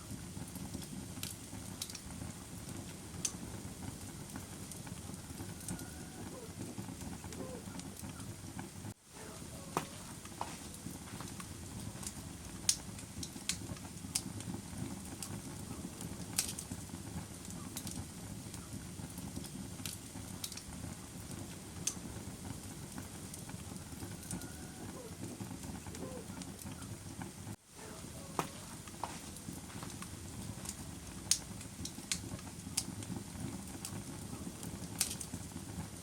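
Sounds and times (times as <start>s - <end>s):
campfire flames rushing: 0.0s - 36.0s
fire crackling and popping: 0.0s - 36.0s.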